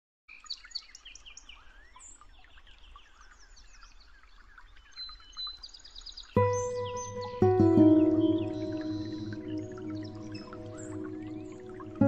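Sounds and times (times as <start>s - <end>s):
birds chirping and calling: 6.4s - 12.0s.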